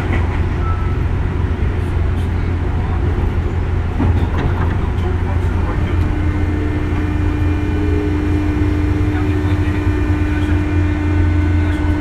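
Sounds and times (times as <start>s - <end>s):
train wheels rumbling on track: 0.0s - 12.0s
steady humming tone: 5.4s - 12.0s.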